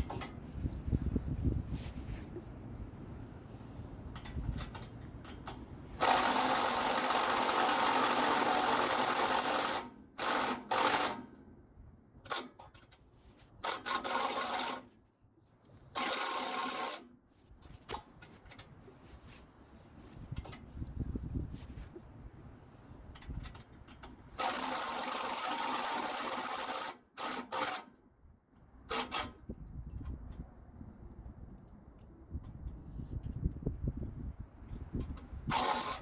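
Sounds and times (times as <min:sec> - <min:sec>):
cordless drill driving fasteners: 0:04.2 - 0:11.3, 0:13.6 - 0:14.9, 0:15.9 - 0:17.1, 0:23.4 - 0:27.9, 0:35.0 - 0:36.0.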